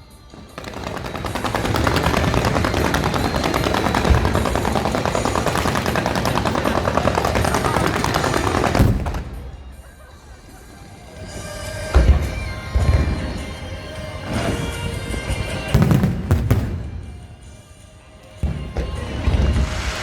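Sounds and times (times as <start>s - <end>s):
fireworks crackling rapidly: 0.0s - 11.7s, 14.3s - 17.8s, 18.4s - 20.0s
firework bang: 0.4s - 9.9s, 15.7s - 17.6s, 18.4s - 20.0s.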